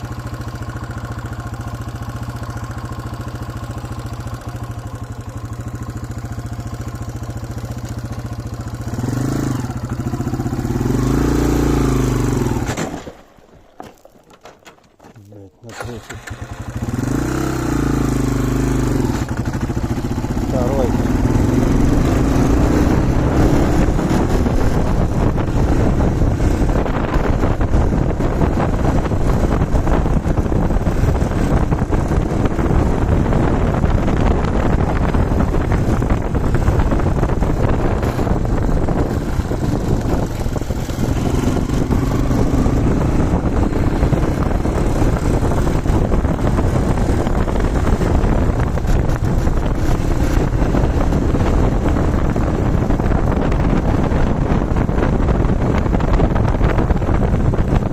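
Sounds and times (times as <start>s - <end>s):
motorcycle engine running: 0.0s - 14.1s, 15.6s - 57.9s
wind buffeting microphone: 16.1s - 57.9s.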